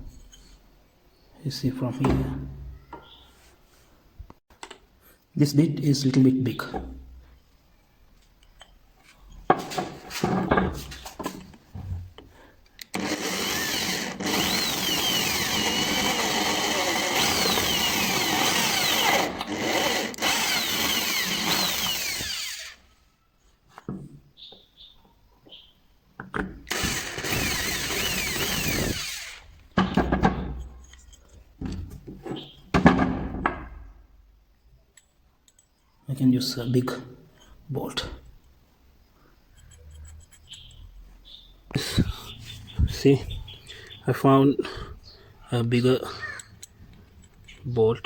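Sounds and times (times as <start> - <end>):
tools clattering and knocking: 8.6 - 12.3, 29.7 - 33.6
electric hand drill boring: 12.9 - 22.9, 26.7 - 29.5.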